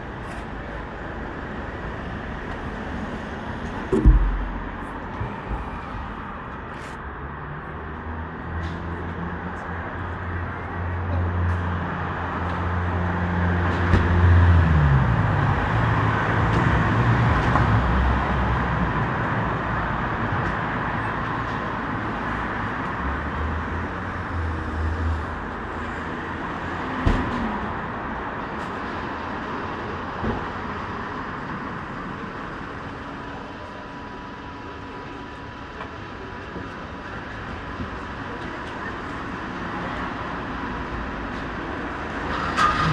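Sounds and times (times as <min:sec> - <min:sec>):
wind and road noise: 0:00.0 - 0:42.9
brief thumps: 0:03.9 - 0:05.7.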